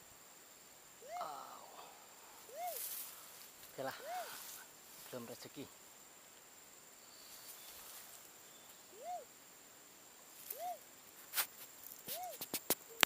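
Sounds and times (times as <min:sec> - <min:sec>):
dove hooting: 0:01.0 - 0:03.2, 0:08.4 - 0:09.4, 0:10.4 - 0:10.9, 0:12.1 - 0:13.0.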